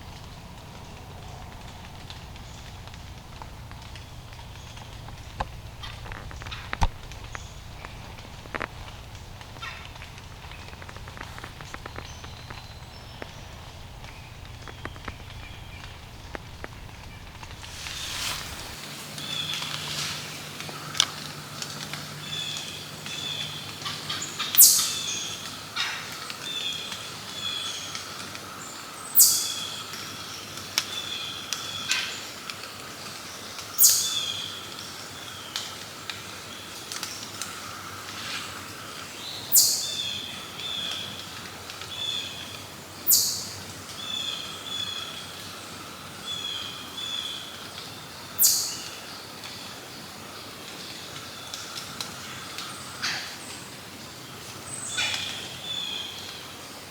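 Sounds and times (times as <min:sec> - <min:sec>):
birds chirping: 0:03.8 - 0:32.2, 0:41.8 - 0:47.6
high falling bird call: 0:17.3 - 0:25.4.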